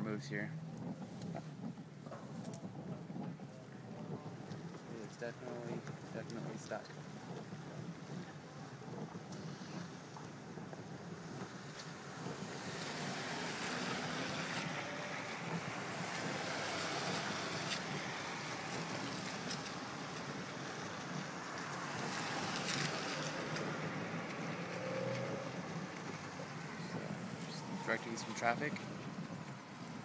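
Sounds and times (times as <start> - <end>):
wind on microphone: 0.1 - 30.0.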